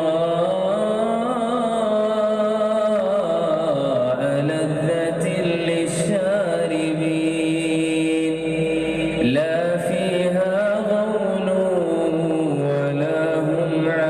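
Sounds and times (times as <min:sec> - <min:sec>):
man chanting melodically: 0:00.0 - 0:14.0.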